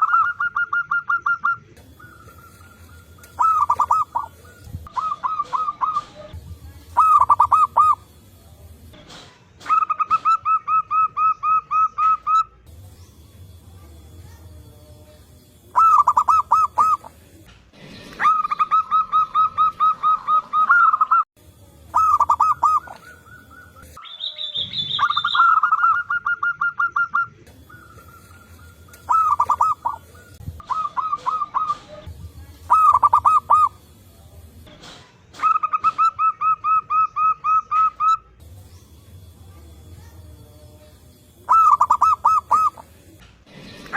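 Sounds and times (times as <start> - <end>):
higher-pitched bird call: 0.0 - 6.3, 7.0 - 8.0, 15.7 - 17.1, 18.1 - 21.3, 21.9 - 32.0, 32.7 - 33.8, 41.4 - 42.8
doves cooing: 0.0 - 8.2, 15.5 - 21.2, 21.9 - 24.0, 24.8 - 34.0, 41.4 - 43.9.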